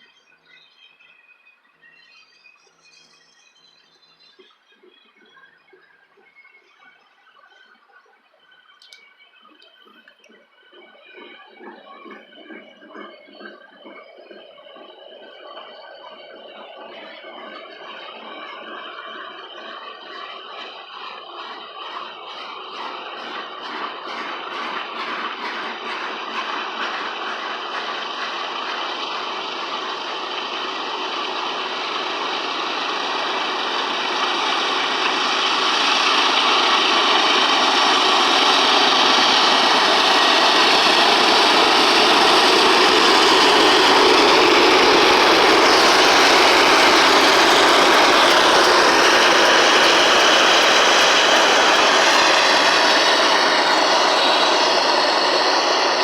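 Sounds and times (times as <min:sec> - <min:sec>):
diesel locomotives running by: 0:10.3 - 0:56.0
freight train rolling past: 0:19.4 - 0:56.0.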